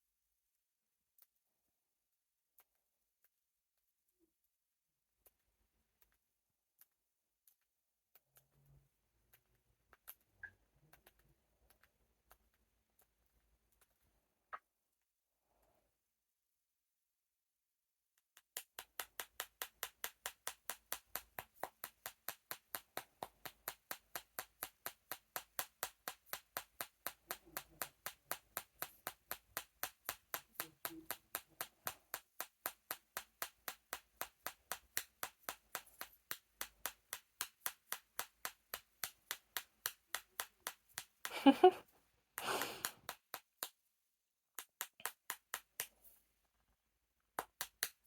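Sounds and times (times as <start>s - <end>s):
beak tapping on cup: 18.4s - 41.8s.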